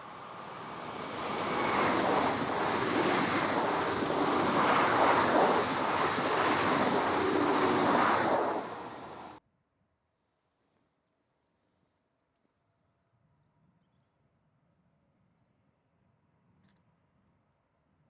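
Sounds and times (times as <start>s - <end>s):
train passing by: 0.0s - 9.4s.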